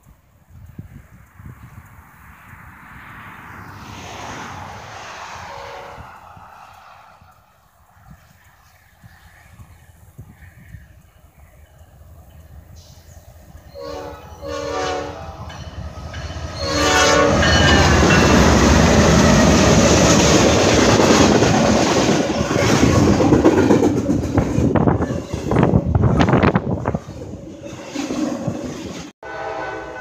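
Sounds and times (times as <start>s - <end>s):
diesel locomotives rumbling past: 0.0s - 30.0s
locomotive horn blasts: 5.4s - 6.2s, 13.7s - 19.5s, 29.2s - 30.0s.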